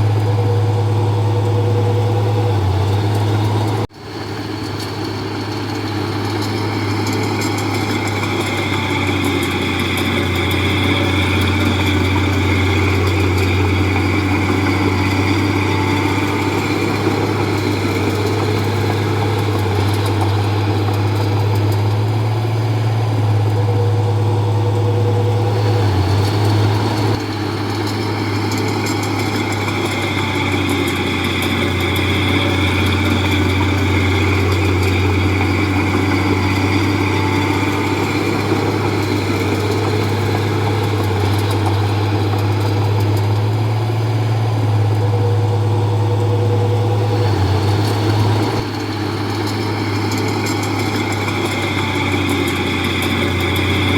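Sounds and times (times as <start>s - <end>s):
bulldozer diesel engine humming: 0.0s - 53.9s.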